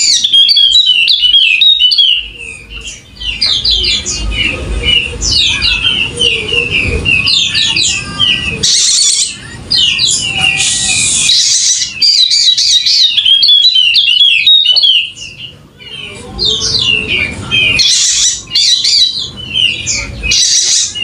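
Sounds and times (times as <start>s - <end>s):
white-eye chirping song: 0.0s - 21.0s
harsh hissing bird notes: 2.2s - 12.9s.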